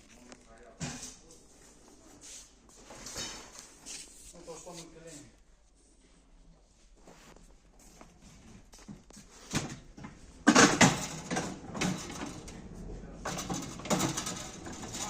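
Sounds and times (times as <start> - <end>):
loud knocks and clattering: 9.5 - 12.5, 13.2 - 15.0.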